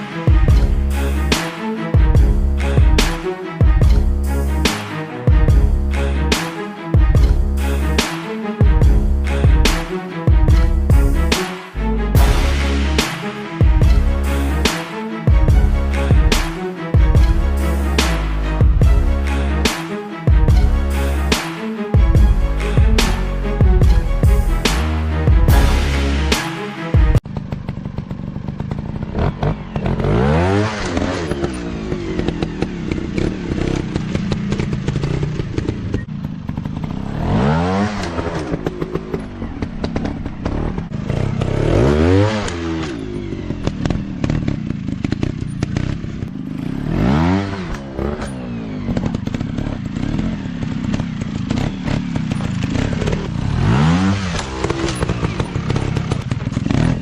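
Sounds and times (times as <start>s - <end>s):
dirt bike engines revving: 27.4s - 57.0s.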